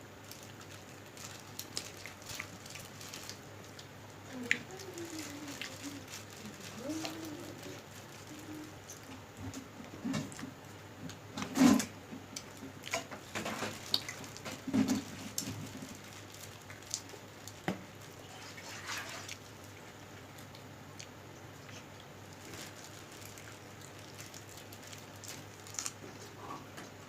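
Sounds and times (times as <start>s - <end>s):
wet clicks and smacks of eating: 12.3s - 17.8s, 19.1s - 26.0s.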